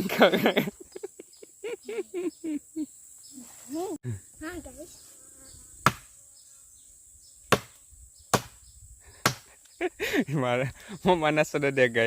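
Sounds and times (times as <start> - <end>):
high insect drone: 0.0 - 12.0
axe chopping tree trunk: 5.8 - 6.1, 7.5 - 8.6, 9.2 - 9.5.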